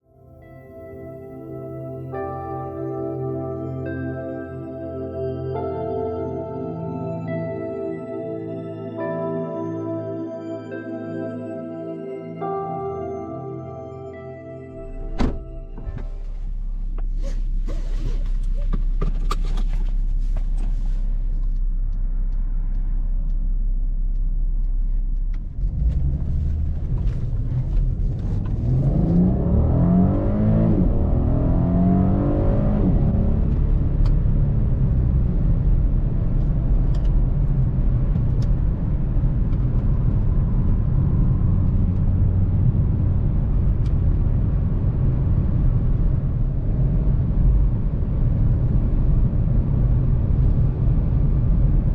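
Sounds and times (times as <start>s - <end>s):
car engine accelerating: 14.8s - 51.9s
road rumble: 14.8s - 51.9s.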